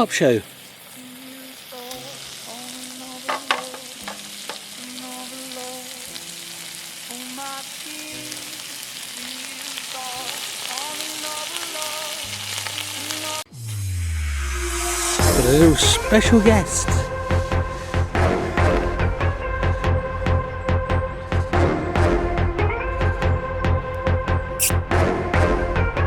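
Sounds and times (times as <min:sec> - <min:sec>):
food sizzling in a frying pan: 0:00.0 - 0:18.8.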